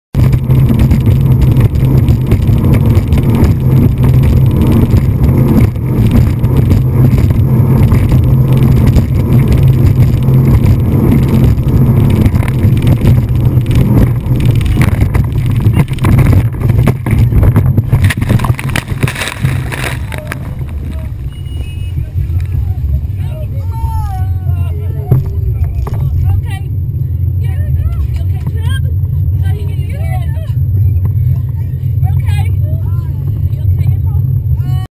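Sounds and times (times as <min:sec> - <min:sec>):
rushing water: 0:00.2 - 0:25.5
motorboat engine drone: 0:00.2 - 0:34.9.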